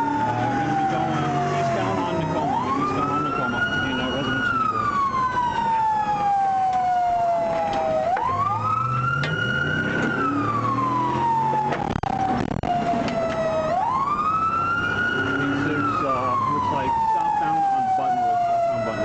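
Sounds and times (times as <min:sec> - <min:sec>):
car engine accelerating: 0:00.0 - 0:19.0
police siren wailing: 0:00.0 - 0:19.0.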